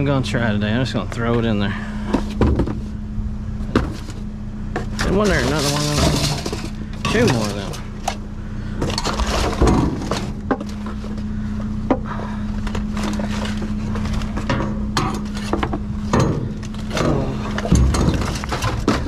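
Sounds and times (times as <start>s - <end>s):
steady low hum: 0.0s - 19.0s
metal scrap clanking: 4.8s - 8.2s, 8.8s - 11.0s, 12.8s - 19.0s.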